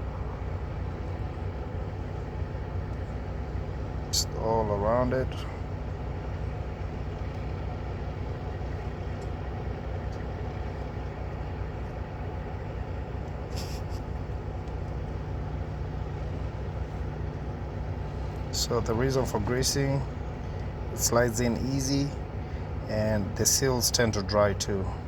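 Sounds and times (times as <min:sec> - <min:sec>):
diesel truck engine idling: 0:00.0 - 0:25.0
brief hiss: 0:13.5 - 0:14.0.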